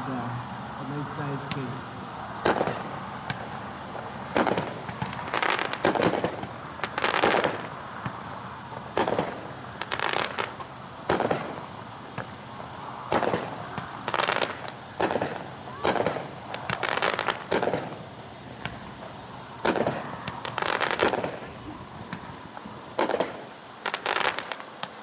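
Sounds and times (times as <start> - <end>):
firework shot reports: 0.0 - 25.0
firework shells bursting: 0.2 - 25.0.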